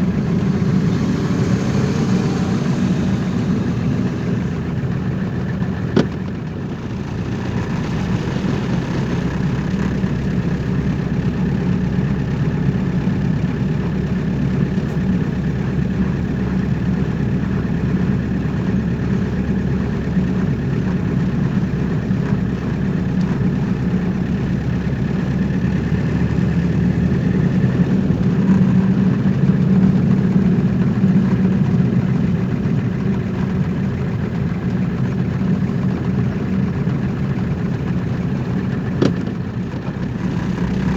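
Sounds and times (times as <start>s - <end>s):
car engine humming: 0.0s - 40.9s.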